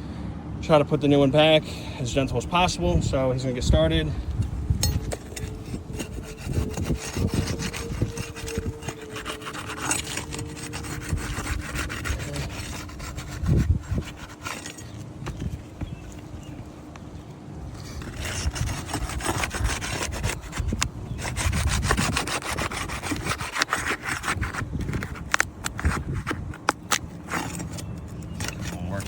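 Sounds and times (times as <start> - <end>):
shingle scraping and rubbing: 4.3 - 29.0.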